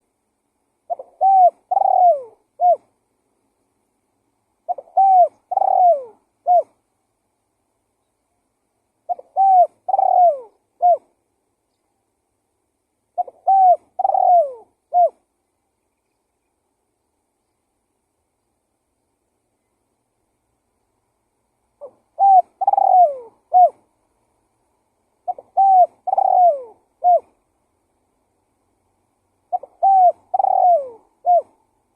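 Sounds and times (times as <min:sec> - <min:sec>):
dove cooing: 0:00.9 - 0:02.9, 0:04.6 - 0:06.8, 0:09.0 - 0:11.2, 0:13.2 - 0:15.3, 0:21.8 - 0:23.9, 0:25.2 - 0:27.4, 0:29.5 - 0:31.7.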